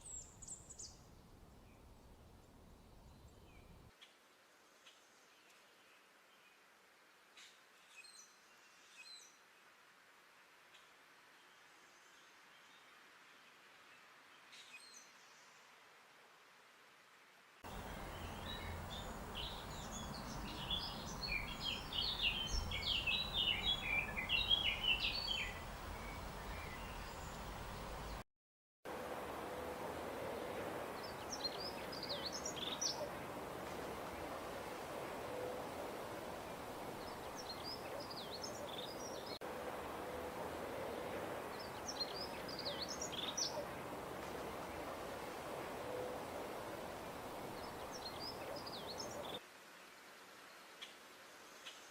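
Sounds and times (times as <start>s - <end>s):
songbird singing rapid song: 0.0s - 4.0s, 17.7s - 28.2s, 30.4s - 34.5s, 35.2s - 39.4s, 40.8s - 49.4s
steady background hiss: 0.0s - 28.2s, 28.9s - 51.9s.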